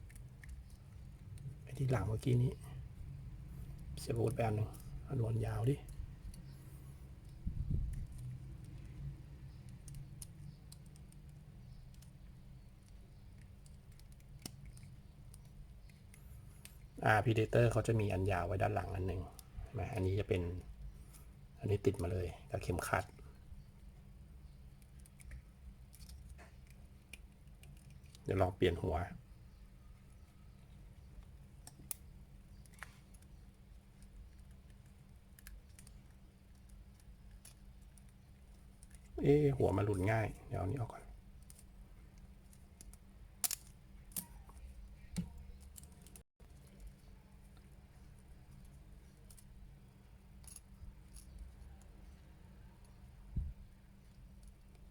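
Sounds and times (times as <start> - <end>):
low steady hum: 0.0 - 54.9
plastic toy parts clicking: 9.5 - 16.8, 24.8 - 28.3, 31.5 - 39.2, 41.3 - 46.9.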